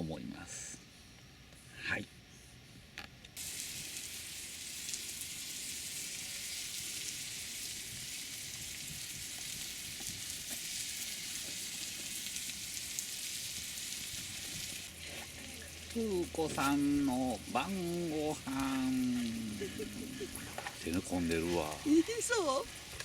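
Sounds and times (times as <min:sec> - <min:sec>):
meat sizzling in a pan: 0:03.4 - 0:23.0
fat spitting and crackling: 0:14.2 - 0:23.0.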